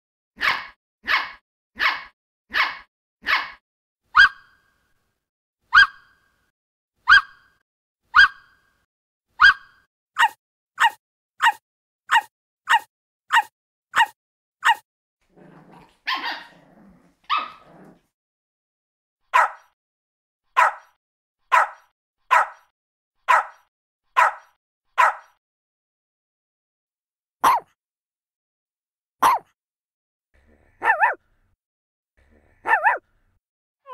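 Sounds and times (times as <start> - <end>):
puppy barking: 0.4 - 4.5, 5.7 - 6.1, 7.0 - 7.5, 8.1 - 8.5, 9.4 - 14.8, 15.4 - 18.0, 19.3 - 19.8, 20.6 - 22.7, 23.3 - 25.4, 27.4 - 27.7, 29.2 - 29.5, 30.8 - 31.2, 32.4 - 33.0.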